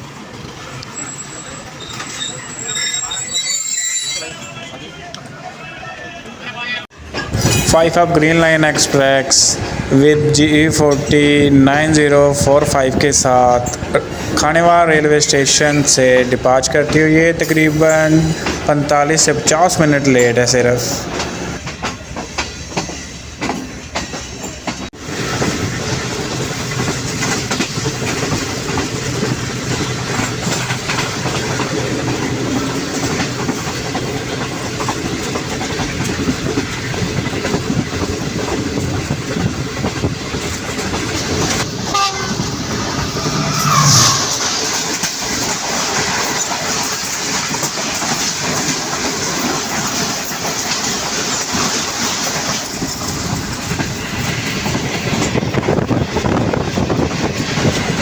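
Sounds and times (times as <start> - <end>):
train rumble and wheel clatter: 0.0 - 58.0
train horn blast: 41.9 - 44.6.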